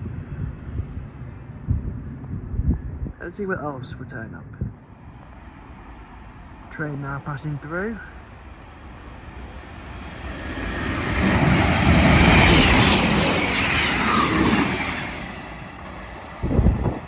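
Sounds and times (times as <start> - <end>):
diesel train passing: 4.8 - 17.0.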